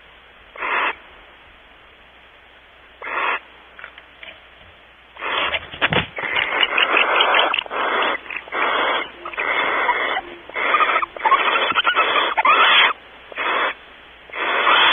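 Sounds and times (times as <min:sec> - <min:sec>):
barn owls hissing: 0:00.5 - 0:01.0, 0:03.0 - 0:04.4, 0:05.2 - 0:14.9.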